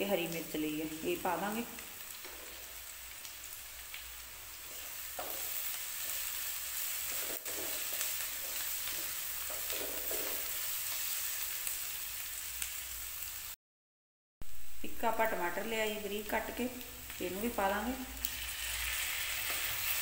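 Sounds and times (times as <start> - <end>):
onions sizzling in hot fat: 0.0 - 13.6, 14.4 - 20.0
wooden spatula scraping pan: 7.0 - 10.6.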